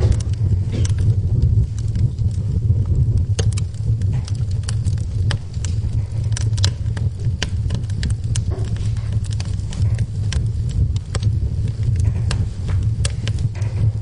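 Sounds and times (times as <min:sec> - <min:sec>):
burning wood crackling and popping: 0:00.0 - 0:14.0
low rumble of flames: 0:00.0 - 0:14.0.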